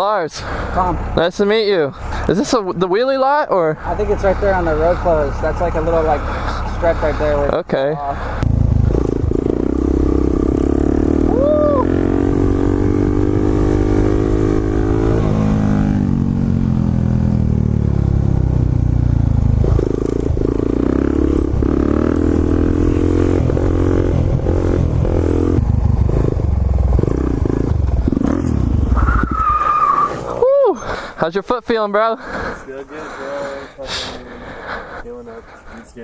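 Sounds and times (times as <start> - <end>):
motorcycle engine running: 8.1 - 29.4.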